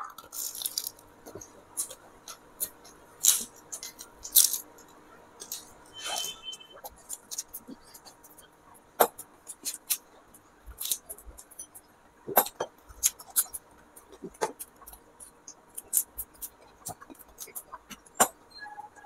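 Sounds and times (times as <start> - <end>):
crisp crunches of chewing: 0.0 - 5.8.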